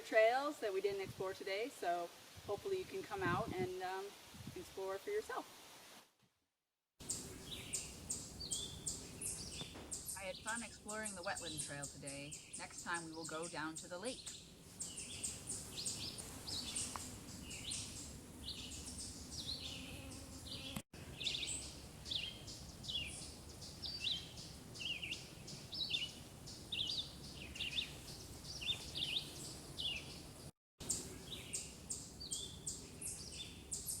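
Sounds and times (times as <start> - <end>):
songbirds singing: 7.0 - 34.0.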